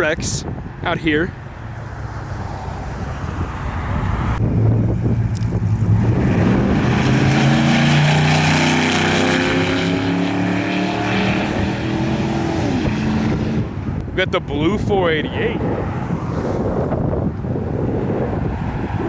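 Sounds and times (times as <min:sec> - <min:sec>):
car engine driving past: 0:05.0 - 0:13.7.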